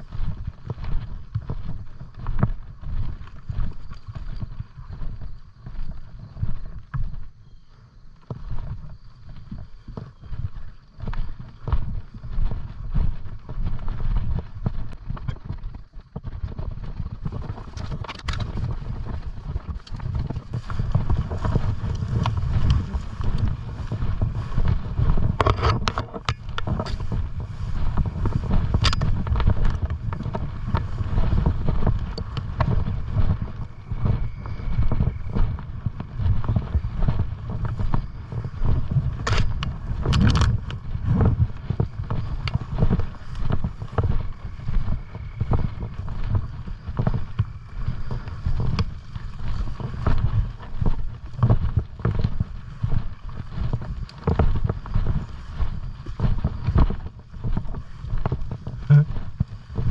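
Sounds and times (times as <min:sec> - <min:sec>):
wind buffeting microphone: 0:00.0 - 0:59.9
footsteps: 0:17.2 - 0:59.9
brush crackling: 0:17.3 - 0:34.6.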